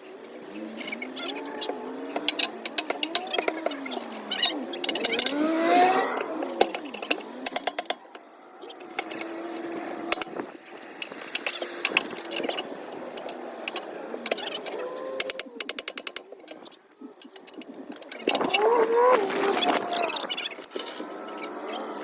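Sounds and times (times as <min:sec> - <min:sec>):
ratchet wrench clicking: 0:02.2 - 0:08.1, 0:13.2 - 0:16.6.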